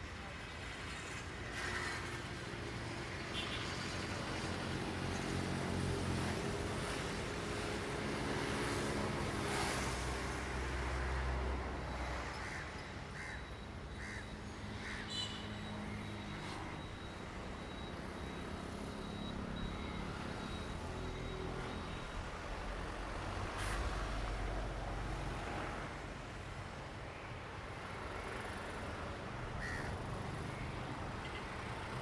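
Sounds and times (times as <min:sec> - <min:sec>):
crows cawing: 0:12.4 - 0:15.3, 0:29.6 - 0:30.0.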